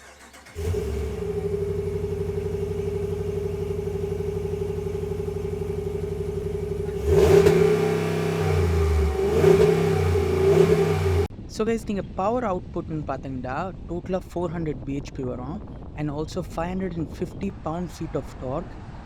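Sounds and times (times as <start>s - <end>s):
truck engine idling and revving: 0.0s - 11.3s.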